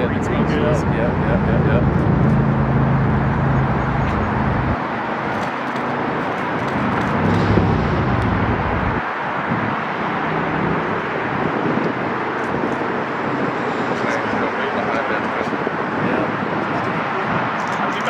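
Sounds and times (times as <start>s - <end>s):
aircraft engine rushing: 0.0s - 18.0s
low hum: 0.8s - 4.8s, 6.8s - 9.0s.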